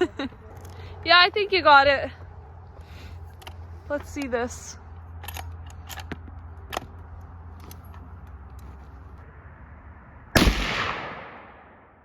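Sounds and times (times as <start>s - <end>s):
pistol shot: 10.4s - 12.0s.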